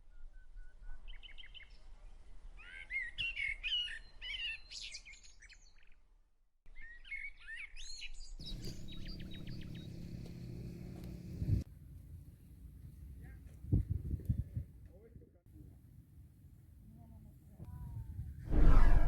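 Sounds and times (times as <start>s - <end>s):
birds chirping and warbling: 7.0s - 11.6s
bird fast trill: 8.4s - 11.4s
low steady hum: 8.4s - 12.2s.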